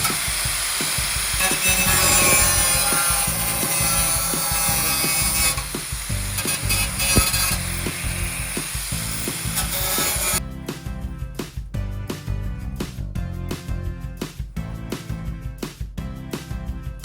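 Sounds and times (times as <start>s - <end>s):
rasping workshop tool: 0.0s - 10.4s
background music with beat: 0.0s - 17.0s.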